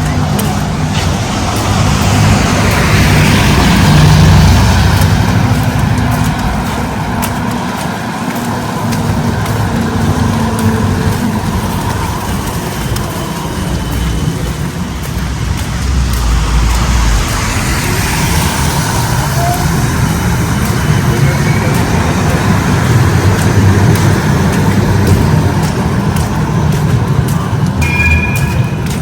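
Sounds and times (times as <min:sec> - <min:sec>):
city traffic noise: 0:00.0 - 0:29.0
vehicle engine running: 0:00.0 - 0:29.0.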